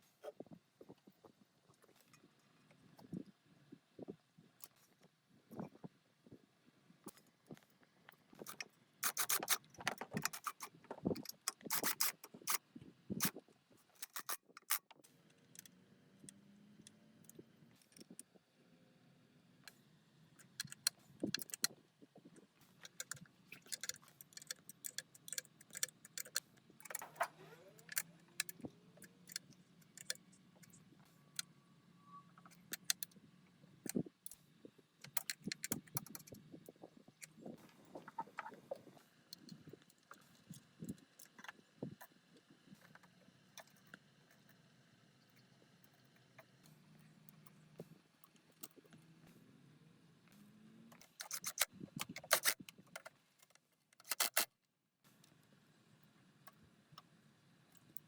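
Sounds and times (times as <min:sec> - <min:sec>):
metal parts and tools clinking: 0:08.4 - 0:12.6, 0:14.0 - 0:14.8, 0:20.4 - 0:21.7, 0:22.8 - 0:30.2, 0:35.0 - 0:36.4, 0:50.9 - 0:53.1, 0:54.0 - 0:54.5.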